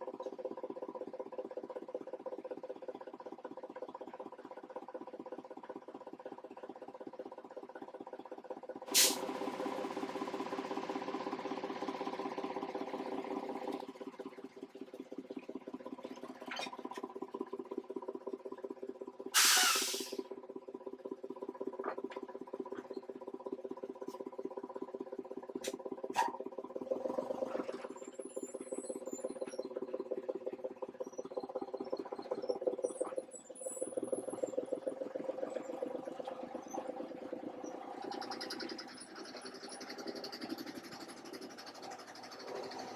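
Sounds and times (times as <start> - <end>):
air hiss: 9.0 - 9.3, 19.4 - 20.2.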